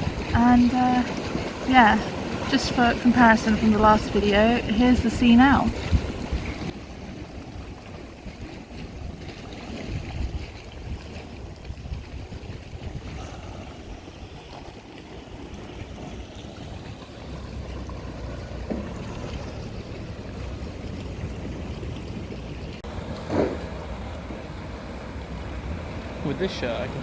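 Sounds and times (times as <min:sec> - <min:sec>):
sea surf washing in: 0:00.0 - 0:11.6, 0:18.2 - 0:27.0
wind rumbling on microphone: 0:00.0 - 0:26.2.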